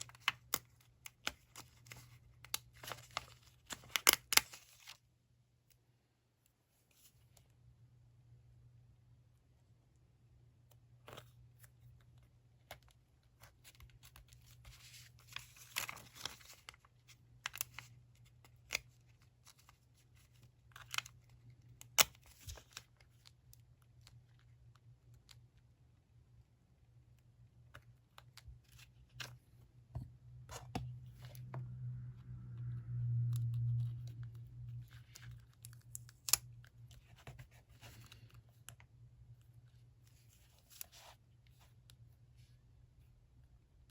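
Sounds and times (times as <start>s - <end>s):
paper rustling: 13.4s - 16.9s
low motor-like hum: 29.9s - 37.0s.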